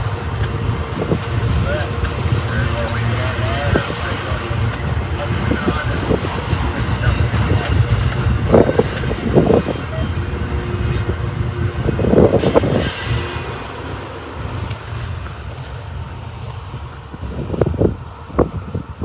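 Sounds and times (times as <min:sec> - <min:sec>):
train clatter: 0:00.0 - 0:18.0
freight train rumbling past: 0:00.0 - 0:19.0
high wheel squeal: 0:06.9 - 0:15.9.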